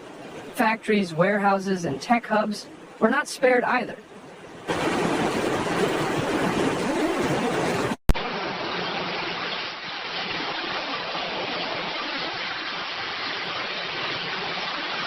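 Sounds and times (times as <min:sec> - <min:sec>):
floodwater rushing: 0:04.6 - 0:15.0.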